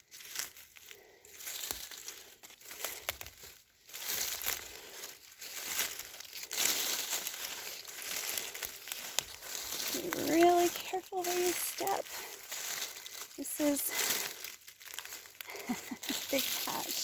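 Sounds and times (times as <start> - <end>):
rustling and crinkling: 0.0 - 17.0.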